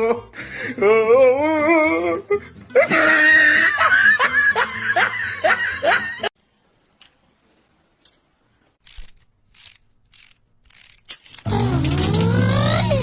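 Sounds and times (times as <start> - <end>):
person laughing hard: 2.7 - 6.3.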